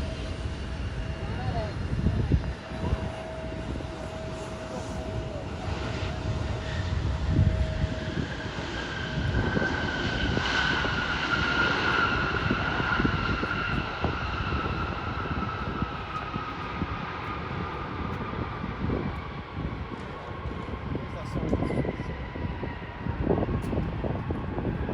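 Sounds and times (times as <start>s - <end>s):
jet airliner passing: 0.0s - 24.9s.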